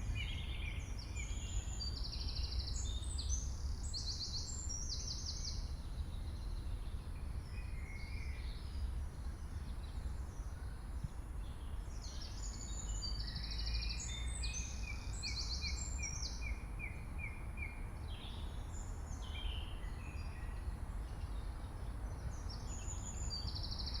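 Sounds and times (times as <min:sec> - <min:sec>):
birds singing and calling: 0:00.0 - 0:24.0.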